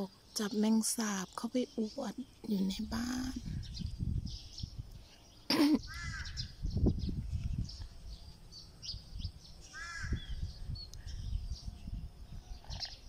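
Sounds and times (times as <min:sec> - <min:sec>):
faint high chirps of small birds: 0:00.0 - 0:13.0
wind rumble on microphone: 0:02.1 - 0:05.2, 0:05.8 - 0:13.0
bird harsh calls: 0:02.9 - 0:11.4, 0:12.4 - 0:13.0.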